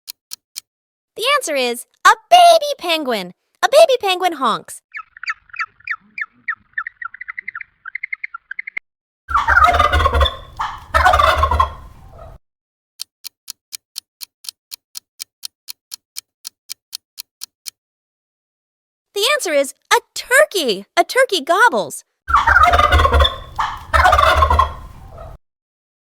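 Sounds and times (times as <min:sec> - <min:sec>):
clock-like ticking: 0:00.1 - 0:00.7, 0:13.0 - 0:17.8
turkey gobbling: 0:04.9 - 0:12.4, 0:22.3 - 0:25.4
baby penguin honking calls: 0:09.3 - 0:11.8, 0:22.3 - 0:25.4.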